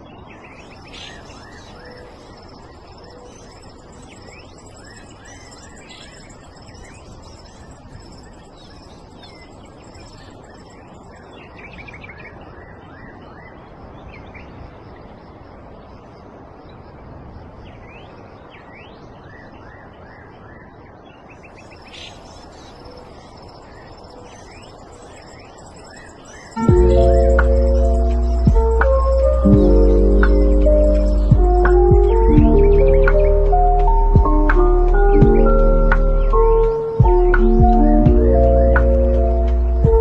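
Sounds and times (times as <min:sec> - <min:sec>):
birds chirping: 0:00.0 - 0:15.2, 0:17.7 - 0:40.0
steady background hiss: 0:00.0 - 0:40.0
thin high tone: 0:24.7 - 0:40.0.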